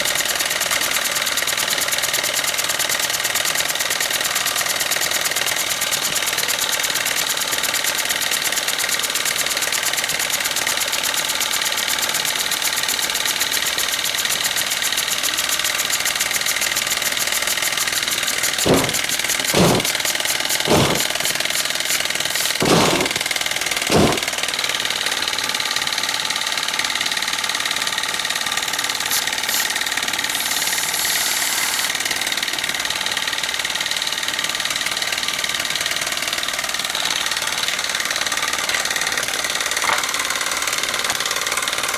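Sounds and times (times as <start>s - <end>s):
steam engines chuffing: 17.7s - 24.4s
short hiss: 18.6s - 20.0s, 20.7s - 21.3s, 22.3s - 23.2s, 23.9s - 24.3s
dull knocks: 18.7s - 20.0s, 20.7s - 21.2s, 22.4s - 23.2s, 23.9s - 24.3s.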